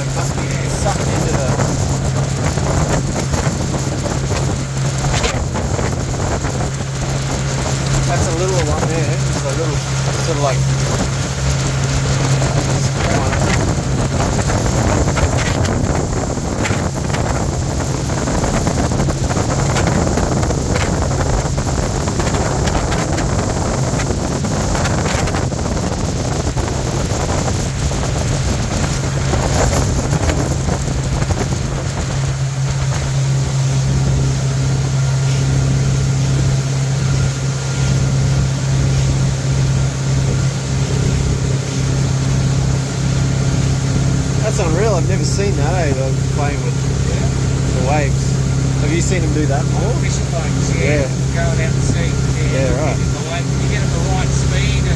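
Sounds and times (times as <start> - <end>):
motorboat engine humming: 0.0 - 54.9
wind buffeting microphone: 0.0 - 54.9.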